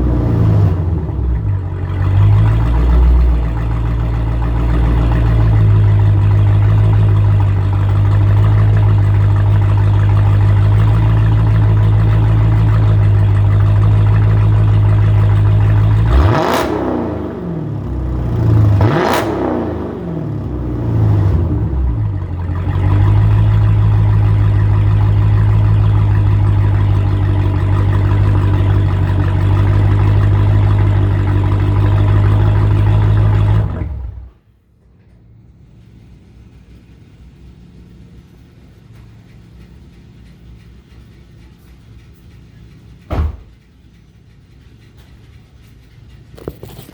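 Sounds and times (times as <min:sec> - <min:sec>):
car engine revving: 0:00.0 - 0:34.4
car exhaust idling: 0:00.0 - 0:46.9.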